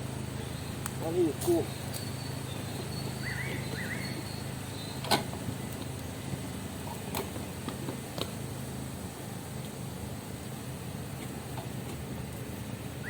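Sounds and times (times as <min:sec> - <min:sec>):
steady low hum: 0:00.0 - 0:13.0
bird chirping: 0:00.2 - 0:05.8.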